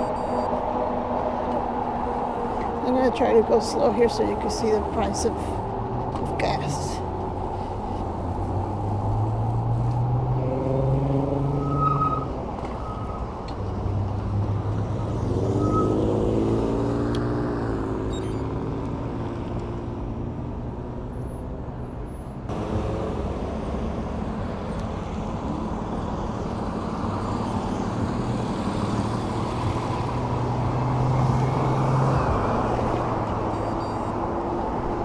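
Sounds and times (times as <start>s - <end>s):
road traffic hum: 0.0s - 35.0s
vehicle engine rising in pitch: 8.6s - 14.0s, 14.8s - 18.8s.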